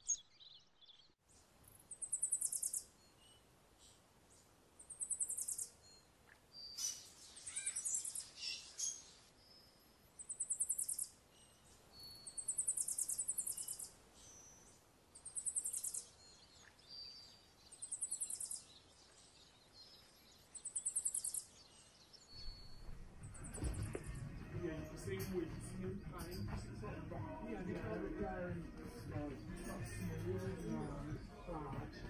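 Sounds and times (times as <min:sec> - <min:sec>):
small bird trilling: 0:02.0 - 0:02.9, 0:06.6 - 0:09.0.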